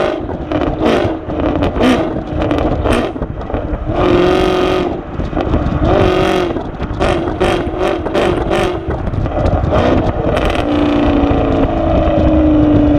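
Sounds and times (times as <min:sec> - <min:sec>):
car engine exhaust revving: 0:00.0 - 0:12.9.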